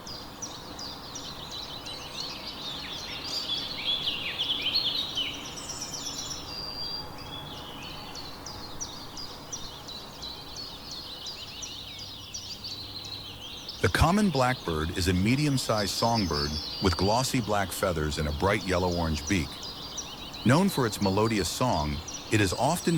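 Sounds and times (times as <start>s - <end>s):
songbirds chirping and twittering: 0.0s - 22.9s
soft background hiss: 12.7s - 22.9s.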